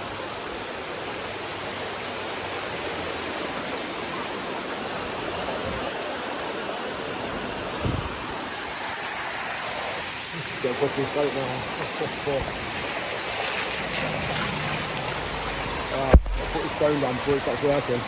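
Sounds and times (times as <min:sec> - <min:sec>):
heavy rain pouring: 0:00.0 - 0:18.0
low thump: 0:16.1 - 0:17.4.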